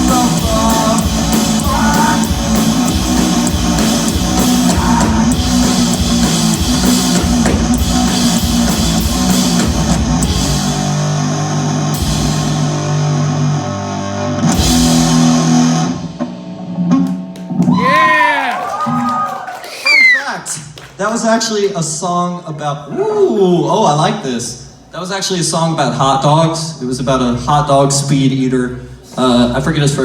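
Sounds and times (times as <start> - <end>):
rock band playing: 0.0 - 17.7.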